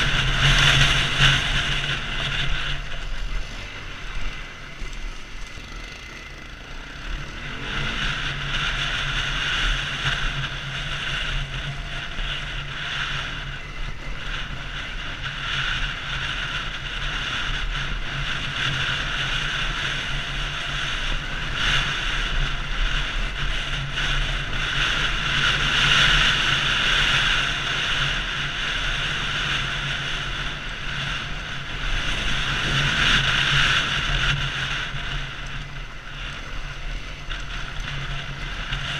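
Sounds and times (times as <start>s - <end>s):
wind rushing on microphone: 0.0s - 5.7s, 6.3s - 38.9s
motorcycle engine running: 0.0s - 38.9s.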